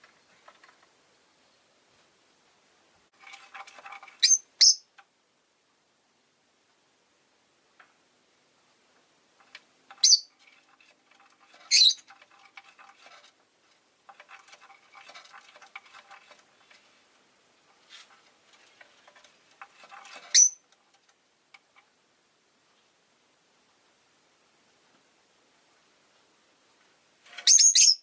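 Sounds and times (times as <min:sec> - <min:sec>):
soft scratchy ticking and rustling: 0:00.0 - 0:01.0, 0:03.1 - 0:04.2, 0:08.9 - 0:22.0
lovebird chirps: 0:04.2 - 0:04.9, 0:10.0 - 0:10.3, 0:11.7 - 0:12.0, 0:20.3 - 0:20.6, 0:27.4 - 0:28.0.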